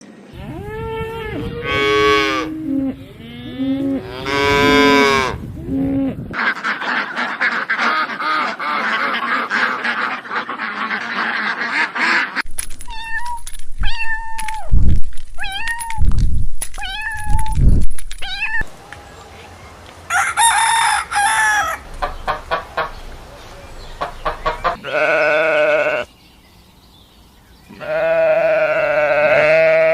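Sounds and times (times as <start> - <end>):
farm animals calling: 0.3 - 12.5, 18.3 - 26.5, 27.6 - 29.9.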